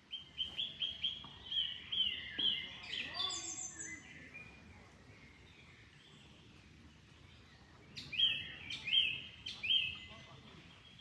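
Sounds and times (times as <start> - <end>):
songbird whistled calls: 7.9 - 10.1.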